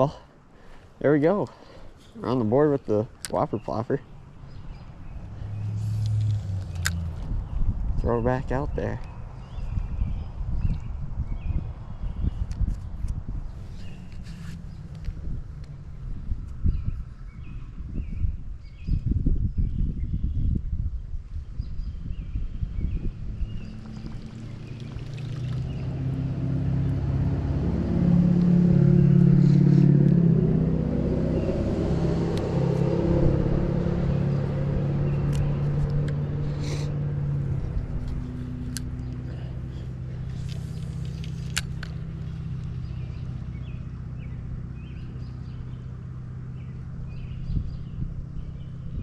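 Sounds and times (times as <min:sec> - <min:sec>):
passing vehicle engine hum: 0:04.0 - 0:09.6, 0:12.8 - 0:17.8, 0:22.8 - 0:49.0.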